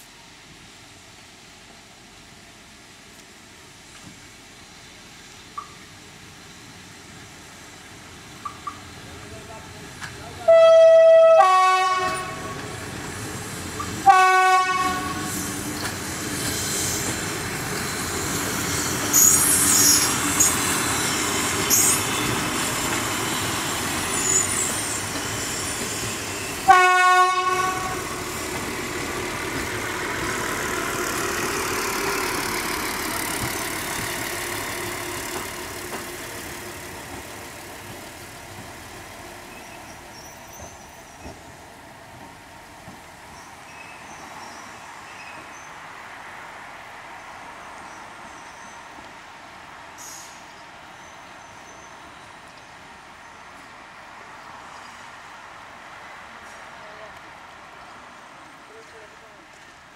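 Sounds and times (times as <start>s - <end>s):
railbus running past: 0.0s - 59.9s
two-note train horn: 10.4s - 12.6s, 14.0s - 15.3s, 26.7s - 28.1s
wheels squealing: 15.2s - 26.7s.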